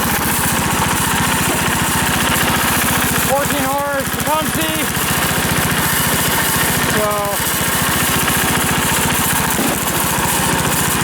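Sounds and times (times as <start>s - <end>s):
garden tractor engine running: 0.0s - 11.0s.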